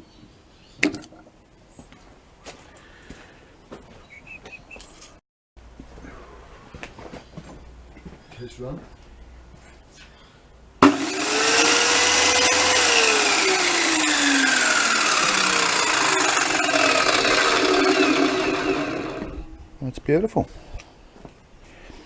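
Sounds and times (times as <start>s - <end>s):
circular saw spinning up and down: 10.8s - 19.6s.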